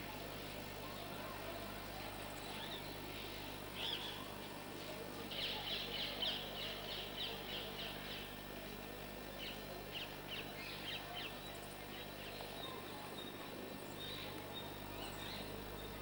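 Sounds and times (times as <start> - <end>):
small birds chirping: 1.9 - 4.5, 9.4 - 16.0.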